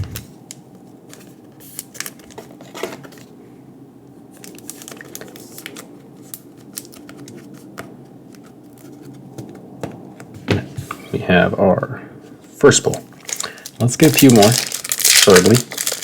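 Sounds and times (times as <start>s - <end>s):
trading cards crinkling and clicking: 4.4s - 9.6s, 12.8s - 16.0s.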